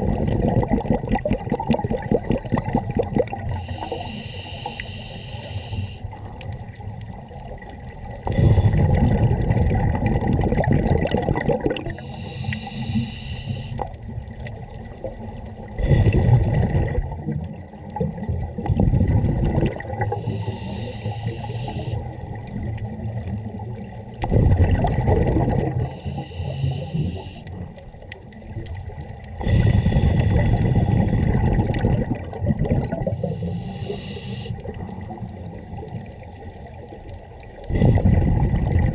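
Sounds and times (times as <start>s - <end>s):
exhaled bubbles bursting: 0.0s - 4.0s, 6.7s - 12.0s, 13.8s - 20.8s, 22.2s - 26.0s, 28.3s - 36.1s, 37.6s - 38.9s
regulator hiss on inhale: 2.2s - 6.2s, 11.9s - 14.0s, 20.1s - 22.2s, 25.8s - 27.6s, 29.4s - 31.2s, 33.1s - 37.0s.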